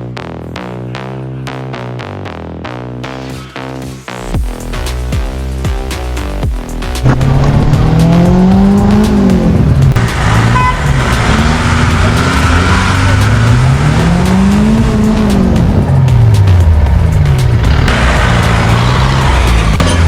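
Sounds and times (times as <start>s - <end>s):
off-road vehicle engine revving: 6.8s - 20.0s.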